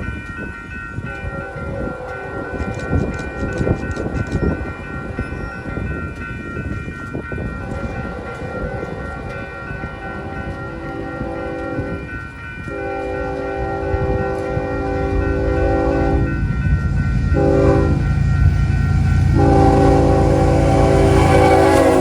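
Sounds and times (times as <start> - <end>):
train rumble: 0.0 - 22.0
locomotive air horn blasts: 12.7 - 16.4, 17.3 - 18.1, 19.4 - 22.0.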